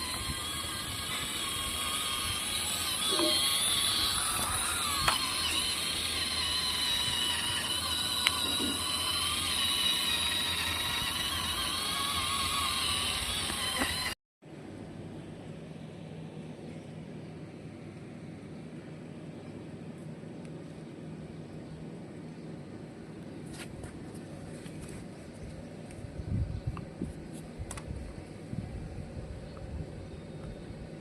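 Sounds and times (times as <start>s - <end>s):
small electric motors whining: 0.0s - 14.2s.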